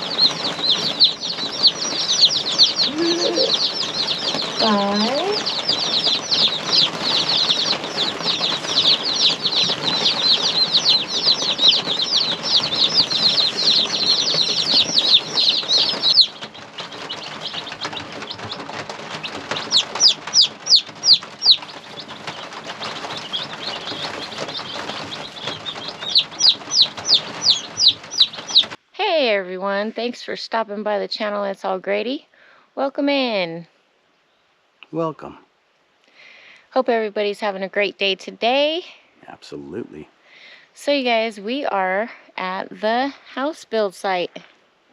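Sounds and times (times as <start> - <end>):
baby chicks peeping: 0.0 - 28.8.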